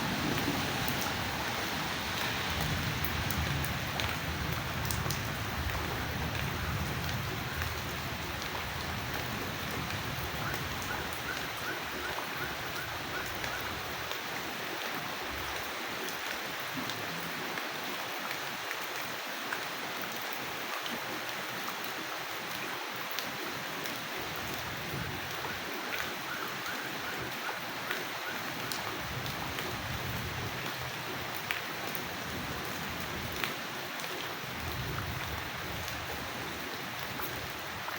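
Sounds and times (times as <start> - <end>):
low rumble: 0.0 - 6.1
steady rain falling: 0.0 - 37.9.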